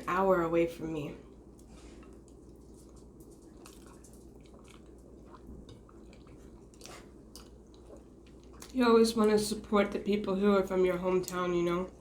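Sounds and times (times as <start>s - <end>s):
person chewing: 1.3s - 8.8s.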